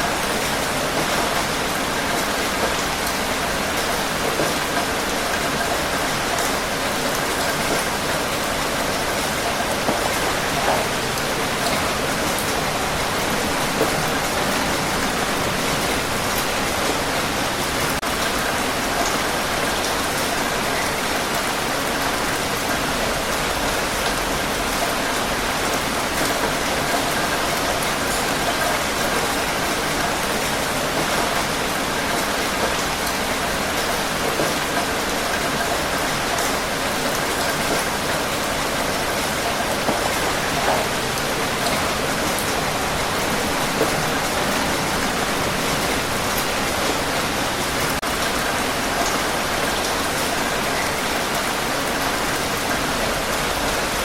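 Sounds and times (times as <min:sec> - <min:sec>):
raindrops pattering: 0:00.0 - 0:54.0
heavy rain hissing: 0:23.8 - 0:54.0.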